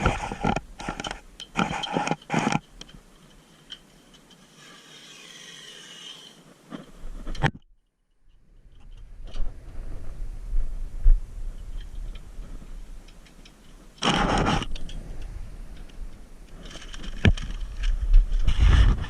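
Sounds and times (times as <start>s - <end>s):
low rumble: 8.6s - 13.1s.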